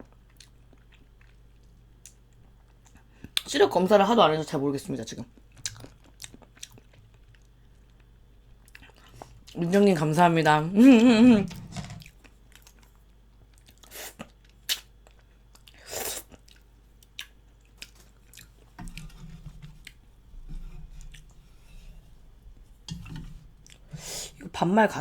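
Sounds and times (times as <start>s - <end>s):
person chewing: 0.0s - 3.5s, 5.3s - 9.6s, 11.5s - 19.1s, 23.6s - 24.4s.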